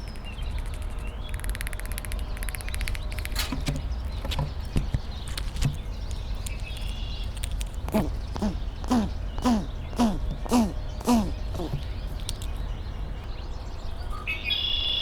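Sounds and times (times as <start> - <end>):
animal harsh calls: 7.8 - 12.2.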